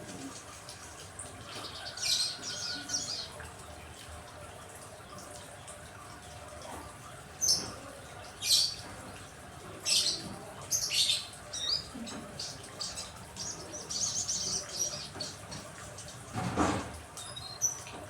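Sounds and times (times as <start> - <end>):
birds chirping: 9.9 - 16.2.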